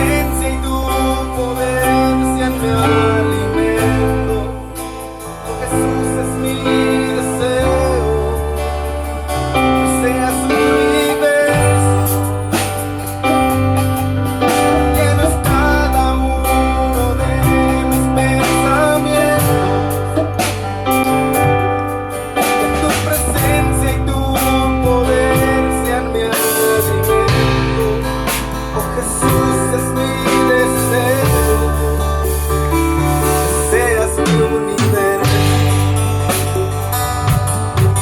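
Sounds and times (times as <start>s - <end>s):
bass notes: 0.0s - 38.0s
keyboard chords: 0.0s - 38.0s
drum and cymbal hits: 32.4s - 38.0s.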